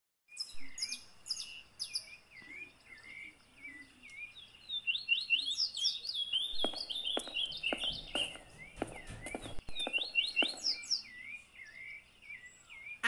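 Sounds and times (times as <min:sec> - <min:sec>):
bird chirping: 0:00.3 - 0:13.0
sharp taps: 0:06.6 - 0:10.9.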